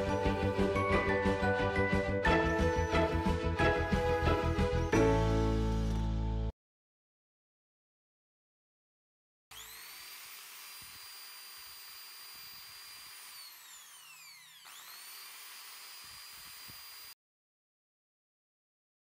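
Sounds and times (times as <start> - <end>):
hammer drill motor whine: 0.0 - 1.4, 9.5 - 17.2.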